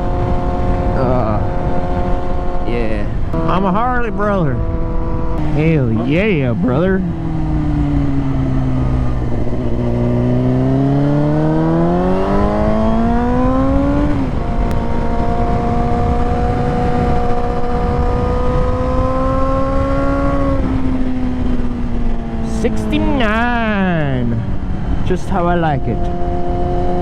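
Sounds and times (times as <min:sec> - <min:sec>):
motorcycle engine accelerating: 0:00.0 - 0:27.0
wind rushing over microphone: 0:00.0 - 0:27.0.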